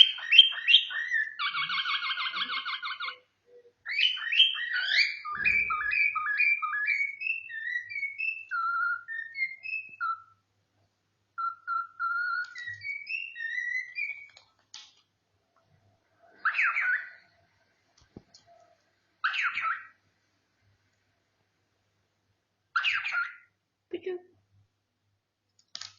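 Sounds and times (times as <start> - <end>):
cockatiel whistling: 0.0 - 10.4, 11.4 - 14.4, 16.4 - 17.2, 19.2 - 19.9
harsh bird calls: 0.0 - 10.4, 11.4 - 14.4, 16.1 - 17.6, 18.4 - 20.0, 22.8 - 23.6.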